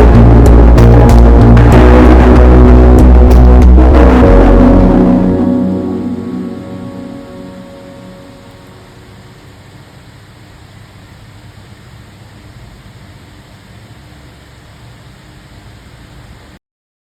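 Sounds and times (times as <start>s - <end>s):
music track: 0.0s - 9.5s
faint low hum: 0.0s - 16.6s.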